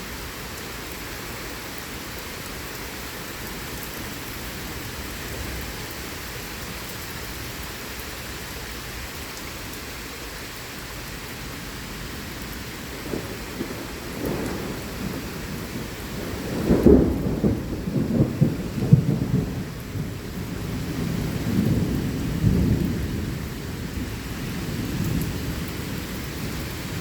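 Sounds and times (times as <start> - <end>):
heavy rain: 0.0 - 27.0
thunder rumbling: 12.8 - 27.0.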